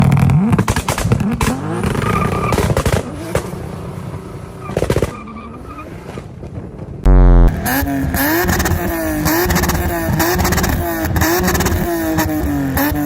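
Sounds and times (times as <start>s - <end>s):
exhaust pops and crackles: 0.0s - 3.5s, 6.4s - 13.0s
car engine revving hard: 7.1s - 13.0s.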